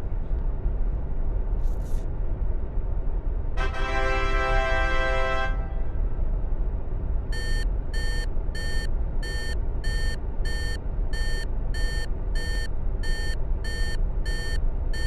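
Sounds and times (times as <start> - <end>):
airplane engine rumble: 0.0 - 15.0
electronic warning beep: 7.3 - 15.0.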